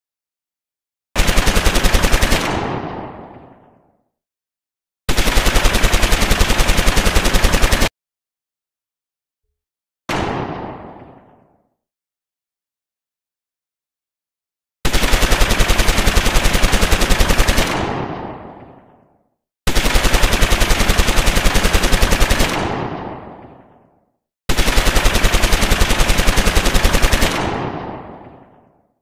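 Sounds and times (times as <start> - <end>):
machine-gun fire bursts: 1.2 - 3.7, 5.1 - 7.9, 14.9 - 19.0, 19.7 - 23.8, 24.5 - 28.8.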